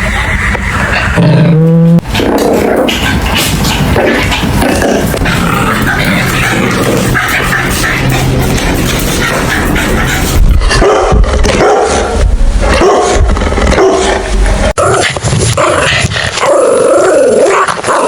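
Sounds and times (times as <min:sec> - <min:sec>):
puppies barking and yipping: 0:00.0 - 0:01.3, 0:02.0 - 0:13.2
low rumble: 0:00.0 - 0:15.6.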